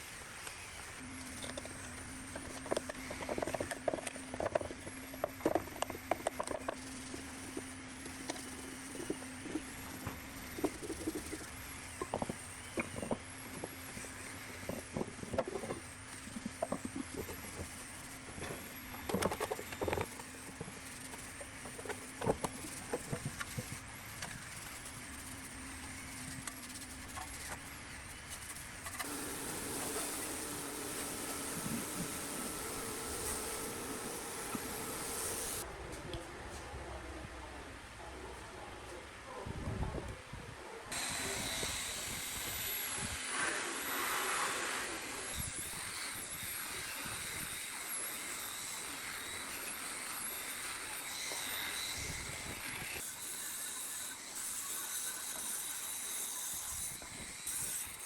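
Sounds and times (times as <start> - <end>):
steady low hum: 20.3 - 35.7.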